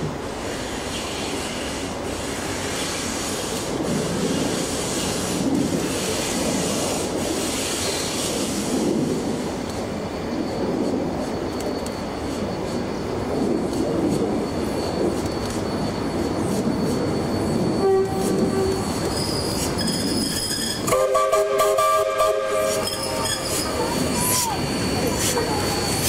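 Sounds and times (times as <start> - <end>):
train rumbling on rails: 0.0 - 26.0
wheel squeal: 14.4 - 20.9, 22.6 - 26.0.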